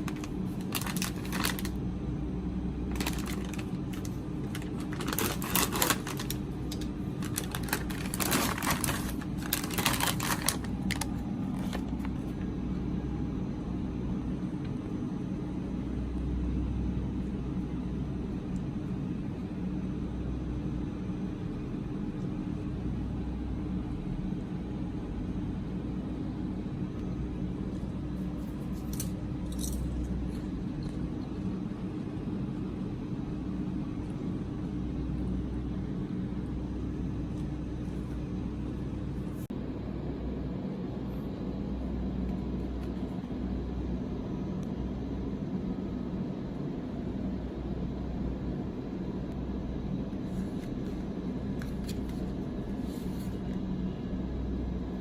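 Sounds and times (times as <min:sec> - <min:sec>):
snack packaging crinkling: 0:00.0 - 0:01.8, 0:02.9 - 0:12.4.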